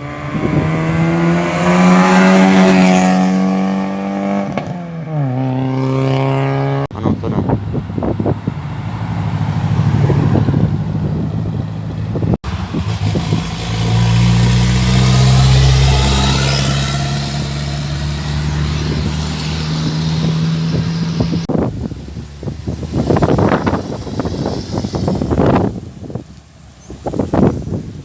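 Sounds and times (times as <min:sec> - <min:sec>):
car driving past: 0:07.7 - 0:27.4.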